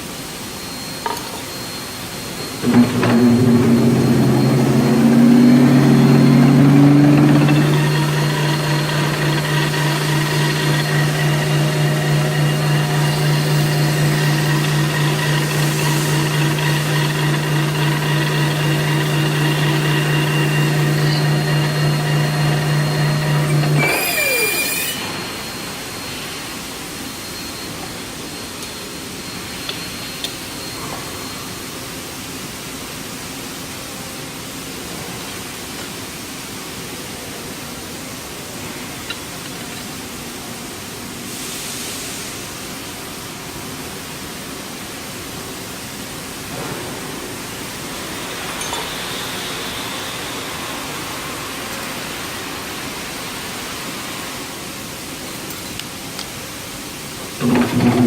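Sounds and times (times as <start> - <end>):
motor falling whine: 2.5 - 25.7, 57.4 - 58.0
electric motor humming: 2.6 - 25.0.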